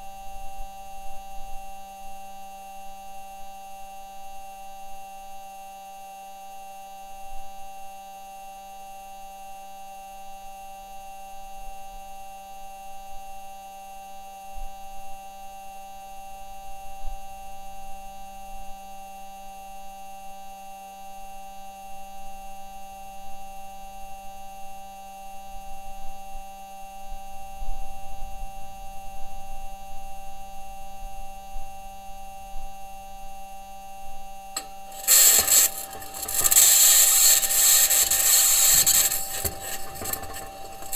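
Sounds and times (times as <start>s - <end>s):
constant humming tones: 34.6s - 40.9s
high-pitched scraping: 34.6s - 40.9s.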